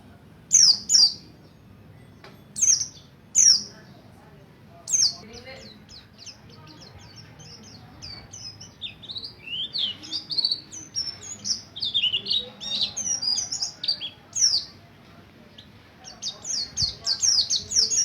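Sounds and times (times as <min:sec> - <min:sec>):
white-eye chirping song: 0:04.9 - 0:14.8.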